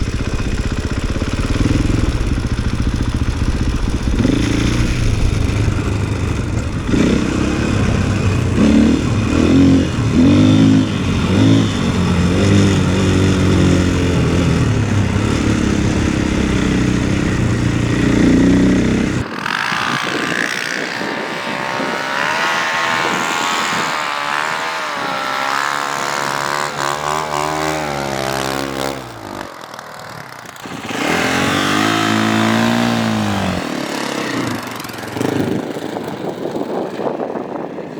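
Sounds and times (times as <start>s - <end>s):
higher-pitched engine note: 0.0s - 20.3s
engine revving up and down: 0.0s - 29.6s, 30.6s - 35.7s.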